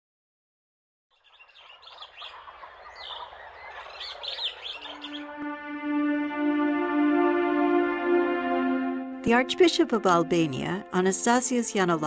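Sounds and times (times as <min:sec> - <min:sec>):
small birds chirping: 0:01.1 - 0:05.4
sustained musical note: 0:04.8 - 0:12.0.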